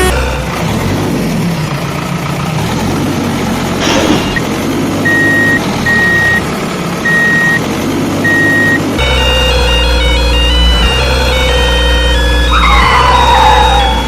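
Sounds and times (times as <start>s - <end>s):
truck engine rumble: 0.0s - 14.0s
truck reversing alarm beeping: 5.0s - 7.6s, 8.2s - 14.0s.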